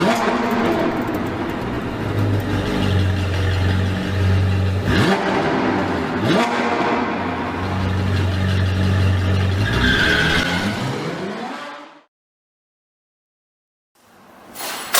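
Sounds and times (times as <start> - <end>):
sports car engine running: 0.0 - 9.6.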